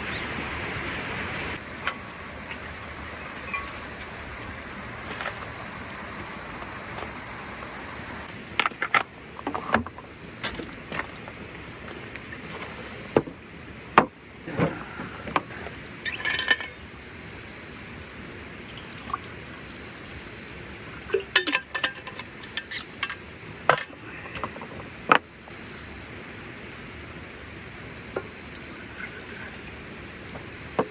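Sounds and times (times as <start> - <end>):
steady background hiss: 0.0 - 30.9
short hissing burst: 12.6 - 13.4.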